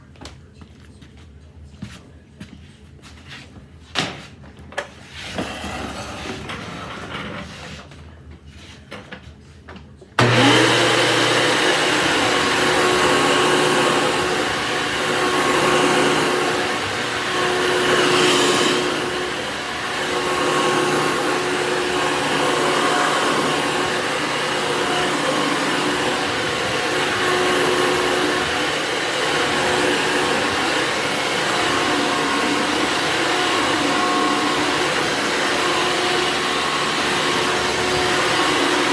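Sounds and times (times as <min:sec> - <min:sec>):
electric motor appliance whirring: 0:10.2 - 0:38.9.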